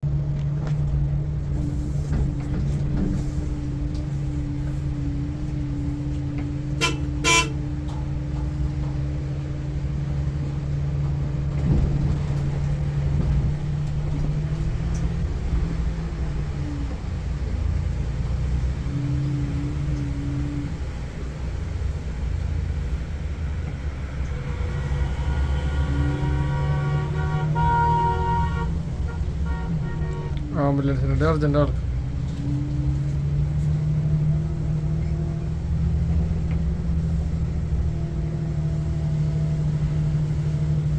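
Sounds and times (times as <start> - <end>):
diesel coach engine under load: 0.0 - 40.9
horn toots: 6.7 - 7.7, 24.1 - 30.6.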